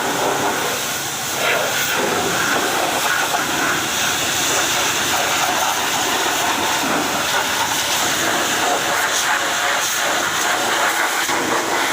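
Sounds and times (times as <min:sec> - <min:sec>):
high-pressure water jet spraying: 0:00.0 - 0:11.9.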